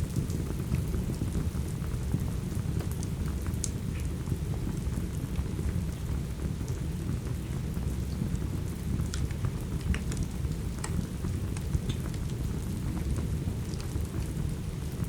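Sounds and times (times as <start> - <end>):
steady rain: 0.0 - 15.0
wood fire crackling: 5.9 - 15.0.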